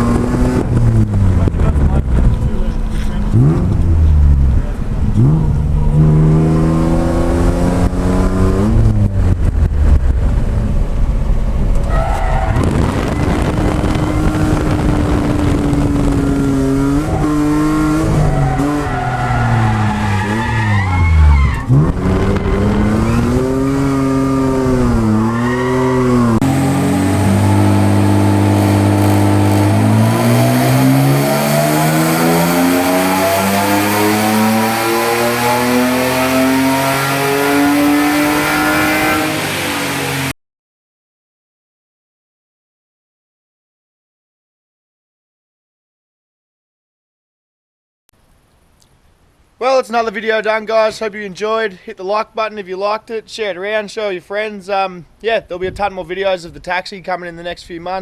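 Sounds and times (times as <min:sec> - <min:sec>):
car engine revving hard: 0:00.0 - 0:09.4, 0:12.5 - 0:40.3
tyre squeal: 0:11.8 - 0:13.2, 0:18.1 - 0:23.4, 0:25.3 - 0:26.3.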